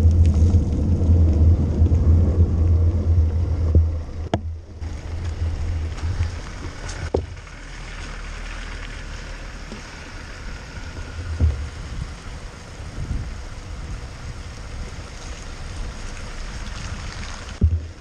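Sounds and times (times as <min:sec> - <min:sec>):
low wind buffeting: 0:00.0 - 0:18.0
bike knocks and thumps: 0:05.9 - 0:07.4, 0:11.3 - 0:12.0, 0:17.6 - 0:18.0
air rushing over microphone: 0:09.0 - 0:18.0.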